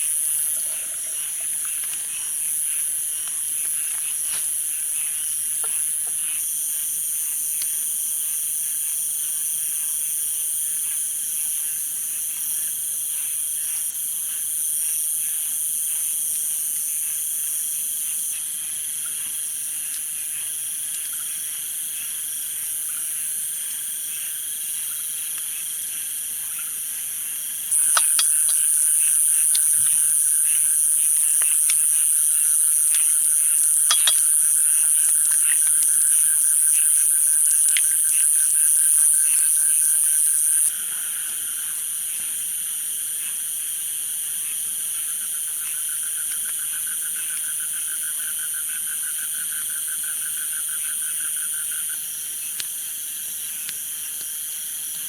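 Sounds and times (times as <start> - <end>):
insects trilling: 0.0 - 55.0
frogs calling: 27.7 - 40.7.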